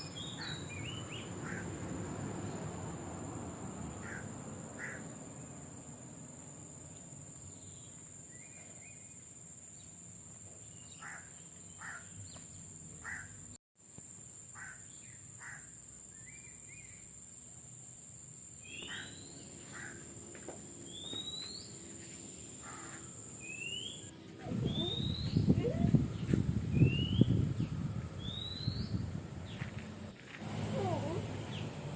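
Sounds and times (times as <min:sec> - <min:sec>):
bird chirps: 0:00.0 - 0:01.6, 0:18.6 - 0:20.0, 0:20.8 - 0:29.7
high insect drone: 0:00.0 - 0:31.9.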